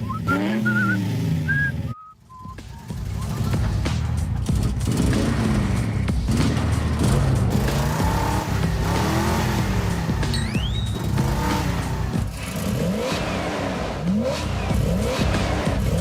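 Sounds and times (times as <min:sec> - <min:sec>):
cartoon engine revving: 0:00.0 - 0:01.9
whistle-like upward sweep: 0:00.0 - 0:02.9, 0:10.3 - 0:11.2.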